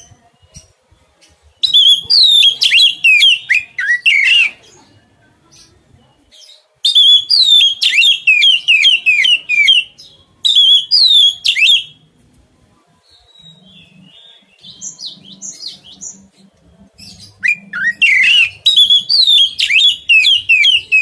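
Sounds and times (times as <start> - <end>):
songbird whistling: 1.6 - 4.6, 6.8 - 12.0, 17.3 - 21.0.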